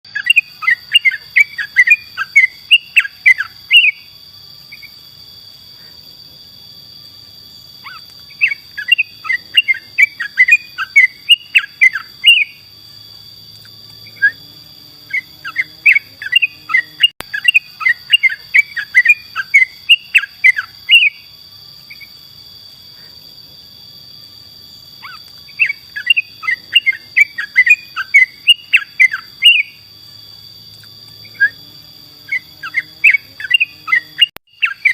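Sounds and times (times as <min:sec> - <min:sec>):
bulbul chattering song: 0:00.1 - 0:05.0, 0:07.8 - 0:12.8, 0:13.5 - 0:22.2, 0:25.0 - 0:29.9, 0:30.7 - 0:34.9.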